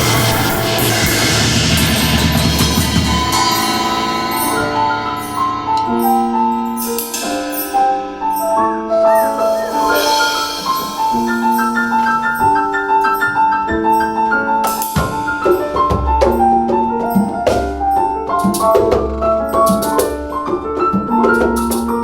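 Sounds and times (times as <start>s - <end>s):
short percussion strokes: 0.0s - 8.0s, 9.2s - 12.8s
melody of held notes: 0.0s - 15.6s.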